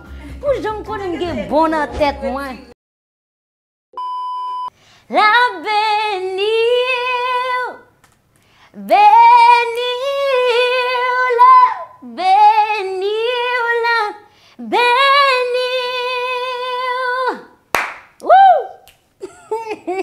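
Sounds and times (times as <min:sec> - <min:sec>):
woman singing unaccompanied: 0:05.1 - 0:07.9, 0:08.8 - 0:17.6.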